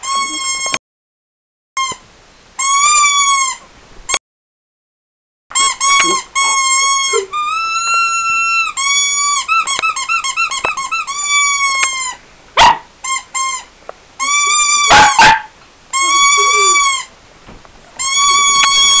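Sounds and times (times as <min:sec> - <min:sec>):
squeaky toy squeaking: 0:00.0 - 0:00.8, 0:01.8 - 0:02.0, 0:02.6 - 0:04.2, 0:05.5 - 0:17.1, 0:18.0 - 0:19.0
dog barking sharply: 0:12.6 - 0:12.9, 0:14.9 - 0:15.6.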